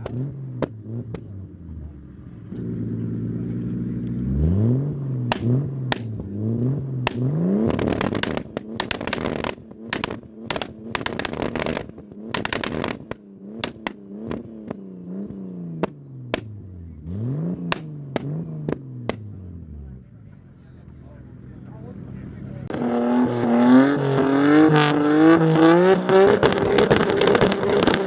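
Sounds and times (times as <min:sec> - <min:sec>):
exhaust pops and crackles: 0:00.0 - 0:01.9, 0:05.0 - 0:19.7, 0:26.2 - 0:28.0.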